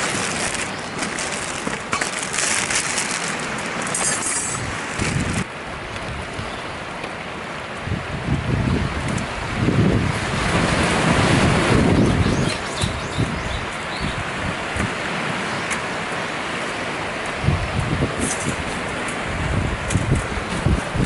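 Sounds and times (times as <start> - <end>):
small crackles: 0.0 - 5.4
wind buffeting microphone: 4.5 - 6.9, 7.8 - 15.4, 17.1 - 21.0.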